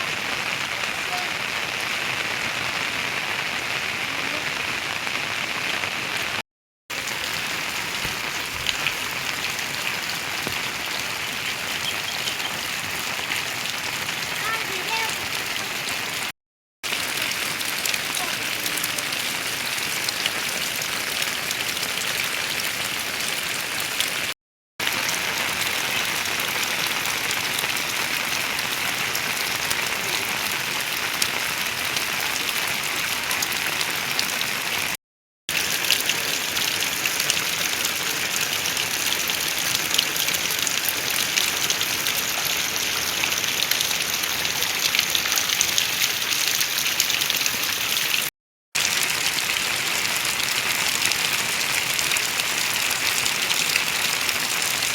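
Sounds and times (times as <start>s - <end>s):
rain drop ticks: 7.4s - 13.0s, 35.5s - 48.3s
heavy rain hiss: 13.9s - 15.3s.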